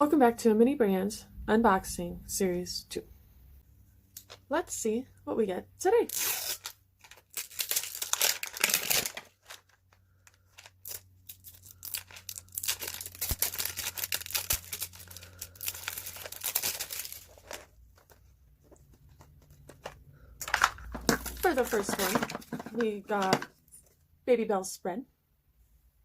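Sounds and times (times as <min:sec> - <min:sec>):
plastic wrapping tearing and crinkling: 0:06.1 - 0:18.2, 0:20.4 - 0:23.4.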